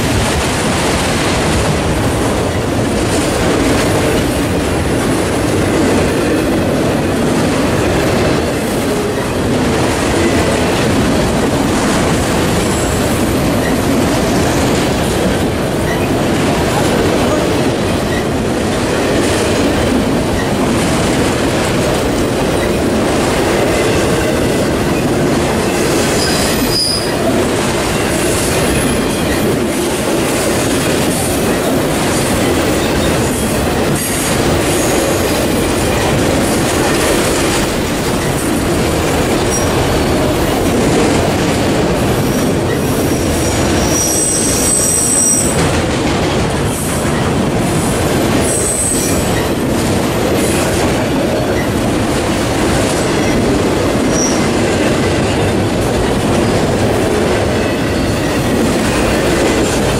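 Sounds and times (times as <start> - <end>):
freight train rumbling past: 0.0 - 59.9
high-pitched wheel squeals: 26.2 - 27.2, 43.8 - 45.6.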